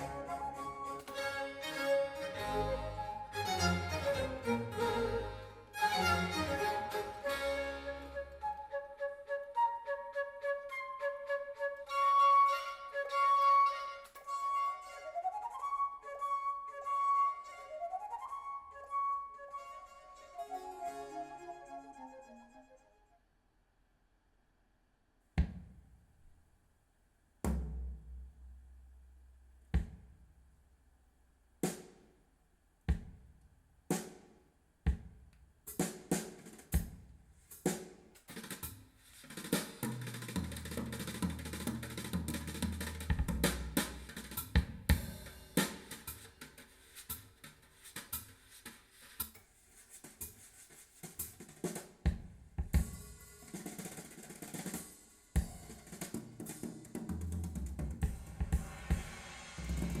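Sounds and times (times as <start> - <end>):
drum kit with hi-hat and cymbals: 27.5 - 29.0, 29.6 - 30.4, 31.6 - 32.1, 32.9 - 60.0
drum strikes ringing out: 57.8 - 60.0.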